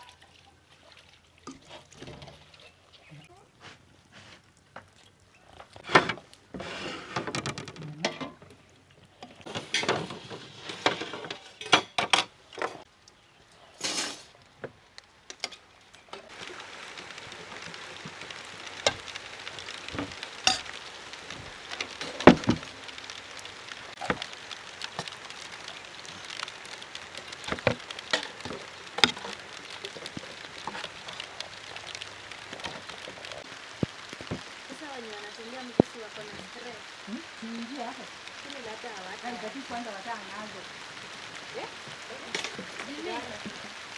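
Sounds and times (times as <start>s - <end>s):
rain hissing: 3.0s - 43.9s
pots and utensils clinking: 5.8s - 8.6s, 9.2s - 12.9s, 13.8s - 14.4s, 20.0s - 20.8s.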